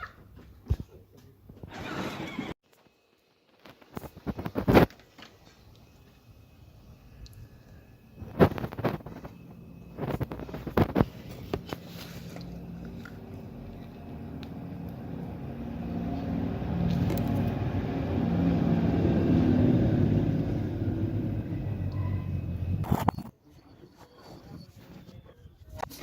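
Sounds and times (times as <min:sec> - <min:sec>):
car engine running: 0:09.9 - 0:22.9.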